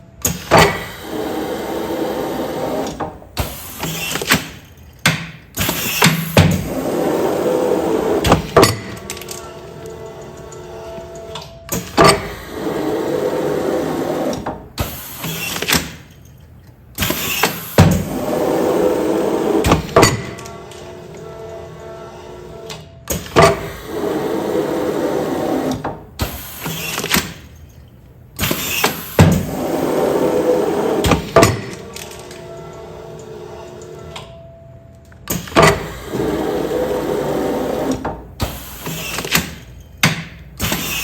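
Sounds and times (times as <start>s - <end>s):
sealing machine running: 35.7s - 39.8s.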